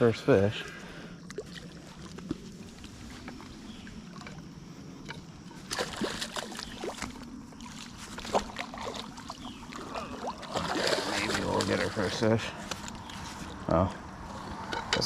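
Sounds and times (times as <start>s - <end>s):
fish splashing in water: 5.6s - 12.2s.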